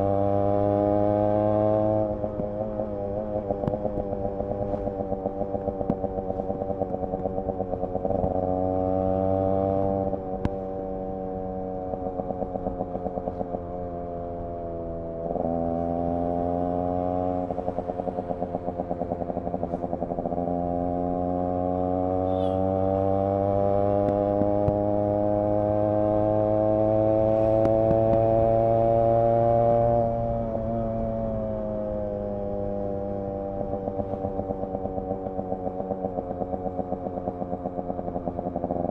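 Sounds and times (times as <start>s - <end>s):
two-stroke motorcycle engine revving: 0.0s - 38.9s.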